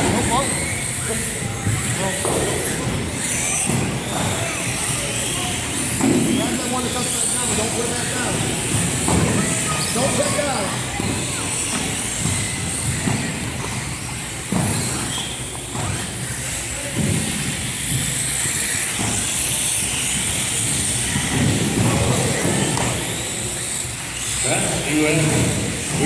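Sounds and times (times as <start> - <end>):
mini race cars whining: 0.0 - 26.0.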